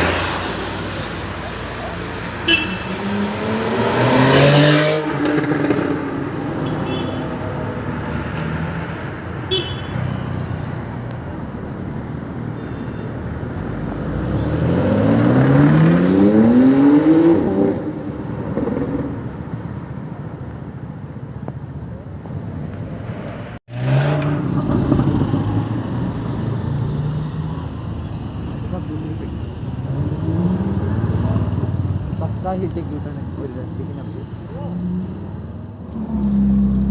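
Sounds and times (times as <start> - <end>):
car engines accelerating: 0.0 - 6.6, 13.3 - 19.4, 23.5 - 36.9
traffic noise: 0.0 - 36.9.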